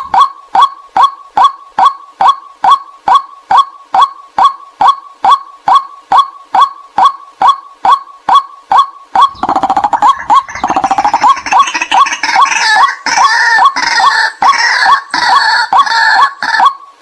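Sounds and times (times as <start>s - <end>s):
waterhen kwak calls: 0.0s - 17.0s
waterhens chattering: 8.7s - 16.8s.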